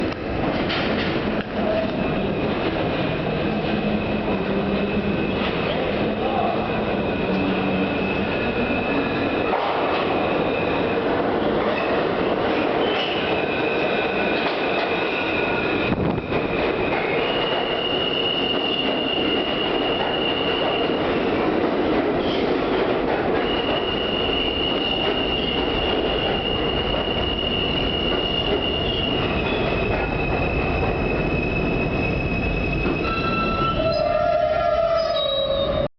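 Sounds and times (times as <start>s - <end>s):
subway train wheels rumbling on rail: 0.0s - 35.9s
high wheel squeal: 17.0s - 21.0s, 23.4s - 35.9s.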